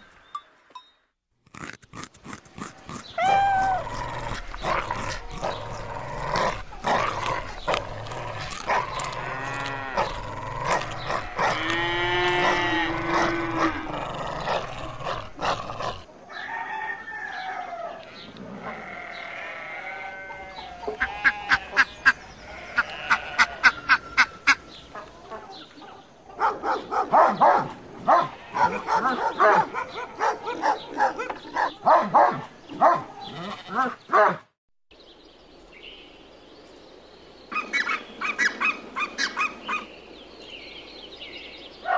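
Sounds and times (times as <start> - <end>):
dogs barking sharply: 25.8 - 34.5.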